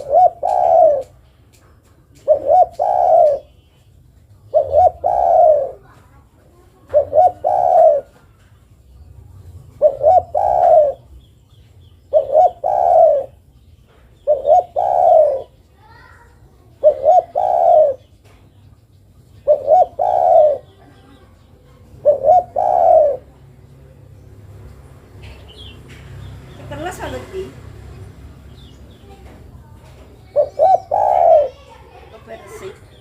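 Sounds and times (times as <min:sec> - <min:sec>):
dove cooing: 0:00.0 - 0:01.2, 0:02.2 - 0:03.6, 0:04.4 - 0:06.0, 0:06.6 - 0:08.3, 0:09.7 - 0:11.1, 0:12.1 - 0:13.5, 0:14.2 - 0:15.6, 0:16.8 - 0:18.2, 0:19.4 - 0:23.5, 0:30.2 - 0:33.0.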